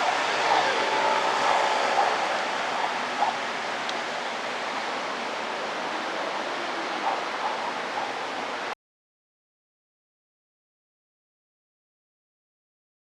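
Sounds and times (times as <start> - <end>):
steady rushing noise: 0.0 - 8.8.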